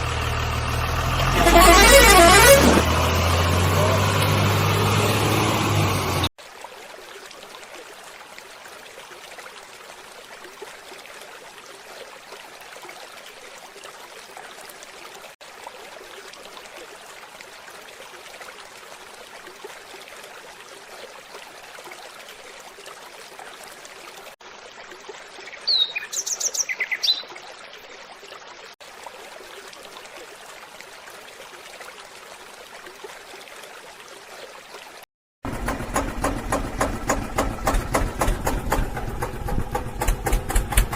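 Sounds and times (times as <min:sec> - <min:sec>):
bird chirps: 0:25.5 - 0:27.3.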